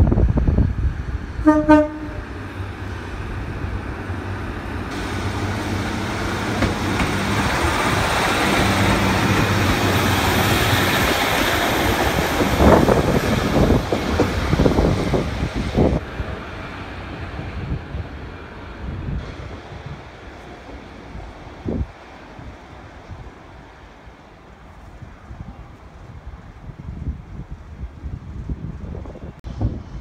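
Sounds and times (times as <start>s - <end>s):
wind on the microphone: 0.0s - 1.8s, 7.4s - 16.4s, 24.7s - 30.0s
diesel train passing: 0.0s - 30.0s
wheels clicking over rail joints: 4.9s - 15.0s.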